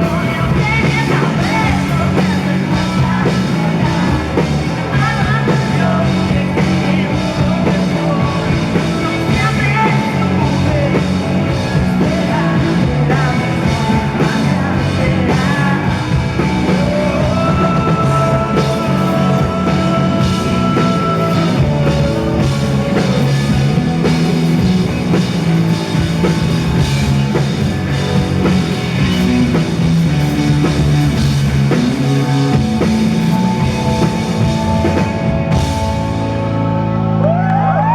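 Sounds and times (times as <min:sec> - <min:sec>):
person singing: 0:00.0 - 0:24.6
rock band playing live: 0:00.0 - 0:37.9.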